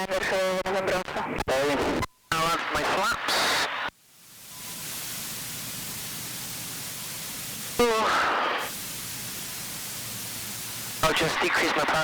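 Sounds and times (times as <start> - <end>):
wavering radio voice: 0.0 - 3.8, 11.0 - 12.0
intercom static hiss: 0.0 - 12.0.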